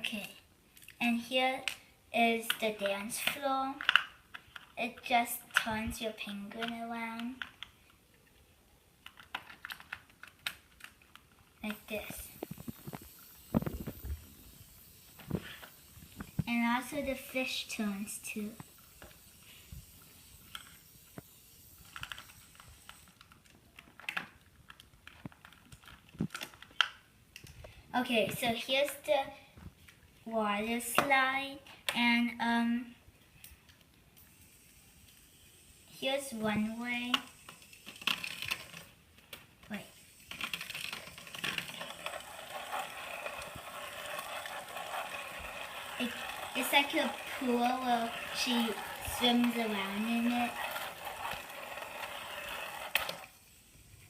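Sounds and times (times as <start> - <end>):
plastic toy pieces clicking: 2.5 - 4.8, 6.5 - 8.3, 9.0 - 13.9, 21.8 - 27.7, 37.1 - 53.6
plastic rattling and clicks: 9.0 - 11.8, 21.8 - 27.7.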